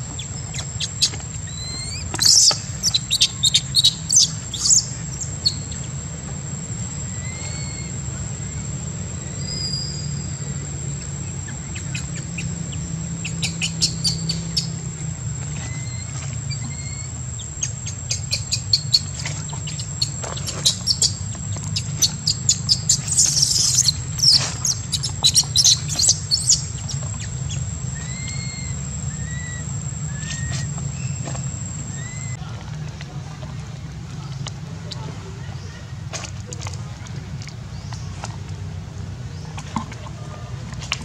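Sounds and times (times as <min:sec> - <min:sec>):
birds chirping: 0:00.0 - 0:06.2, 0:07.0 - 0:32.4
steady low hum: 0:00.0 - 0:41.0
slurred bird whistles: 0:00.5 - 0:05.6, 0:07.2 - 0:08.0, 0:09.3 - 0:10.2, 0:28.0 - 0:31.2.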